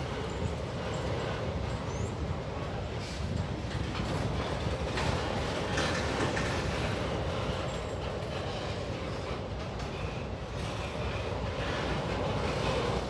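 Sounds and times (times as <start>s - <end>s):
train wheels rolling on rails: 0.0s - 13.0s
train knocks: 3.0s - 13.0s.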